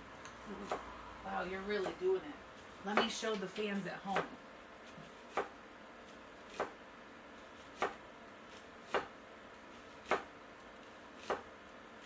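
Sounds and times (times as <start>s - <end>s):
knife slicing onion: 0.3s - 0.9s, 2.6s - 12.0s.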